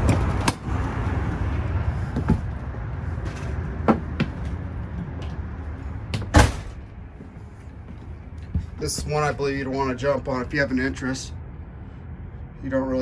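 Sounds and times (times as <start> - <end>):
door shutting bang: 0.0 - 9.4
steady outdoor rumble: 0.0 - 13.0
knocks and clicks of door: 2.1 - 2.6, 3.2 - 6.8.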